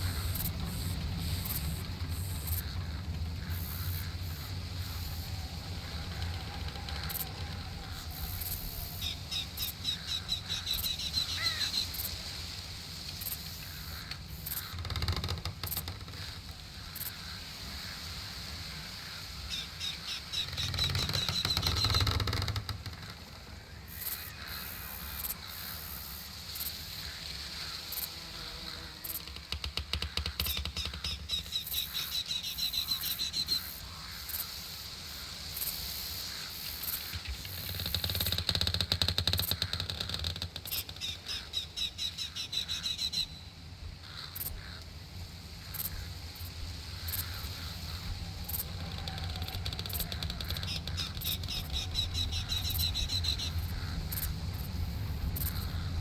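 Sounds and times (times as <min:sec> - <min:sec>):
bird trilling: 0:00.0 - 0:12.1, 0:19.4 - 0:25.3, 0:28.6 - 0:34.0, 0:47.2 - 0:54.6
low steady rumble: 0:00.0 - 0:14.8, 0:41.0 - 0:56.0.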